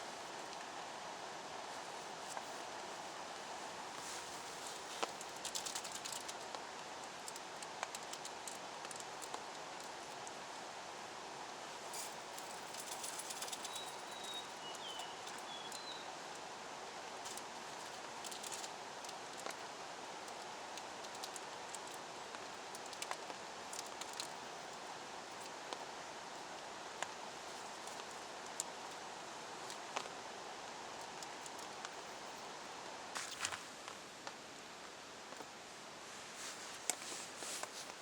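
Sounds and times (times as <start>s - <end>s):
rain hiss: 0.0s - 38.0s
bird chirping: 13.5s - 16.1s.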